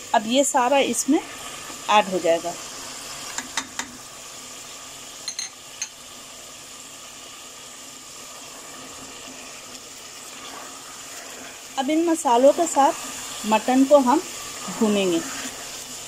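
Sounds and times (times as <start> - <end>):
meat sizzling in oil: 0.0 - 16.0.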